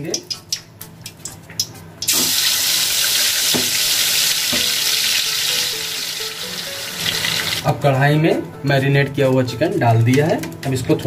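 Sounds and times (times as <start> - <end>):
chicken sizzling in hot oil: 2.0 - 7.6.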